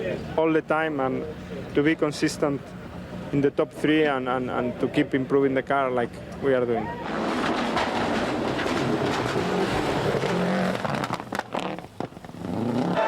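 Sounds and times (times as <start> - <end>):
road noise: 0.0 - 13.0
rally car engine running hard: 7.0 - 13.0
sharp cracks: 7.0 - 13.0.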